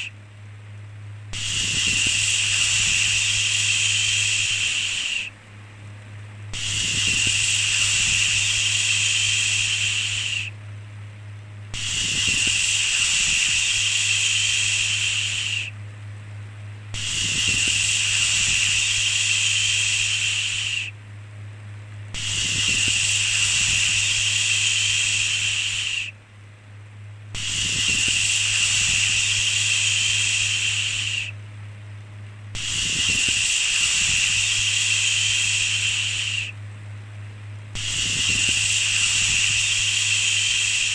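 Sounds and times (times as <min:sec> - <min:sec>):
steady low hum: 0:00.0 - 0:40.9
person shushing: 0:01.4 - 0:05.3, 0:06.6 - 0:10.5, 0:11.8 - 0:15.7, 0:27.4 - 0:31.3, 0:32.6 - 0:36.5.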